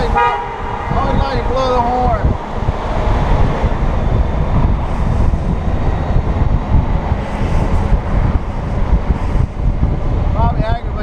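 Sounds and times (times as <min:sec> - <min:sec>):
motorcycle engine and road noise: 0:00.0 - 0:11.0
wind buffeting microphone: 0:00.0 - 0:11.0.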